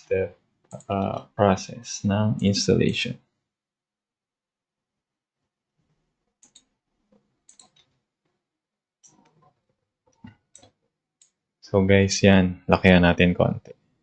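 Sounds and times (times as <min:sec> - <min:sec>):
computer keyboard keys clicking: 0:07.5 - 0:07.9.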